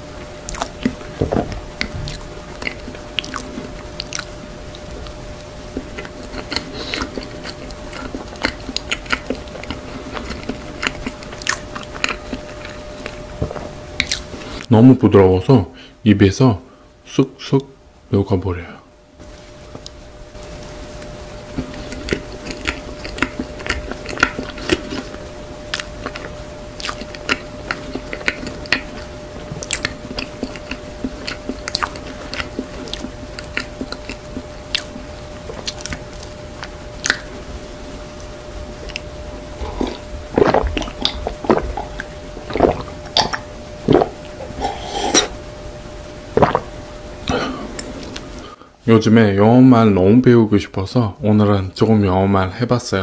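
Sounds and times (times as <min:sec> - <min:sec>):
chewing cake: 0:00.4 - 0:14.7, 0:21.0 - 0:37.3, 0:38.8 - 0:45.4
wet mouth clicks and squishes: 0:01.8 - 0:04.8, 0:05.8 - 0:14.3, 0:21.7 - 0:37.3, 0:39.7 - 0:44.2, 0:46.4 - 0:46.7
swallowing: 0:38.8 - 0:45.4, 0:46.4 - 0:48.5.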